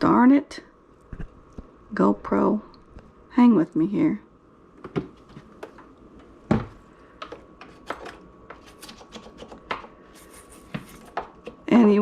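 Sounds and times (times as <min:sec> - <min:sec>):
objects being handled: 0:04.8 - 0:11.7.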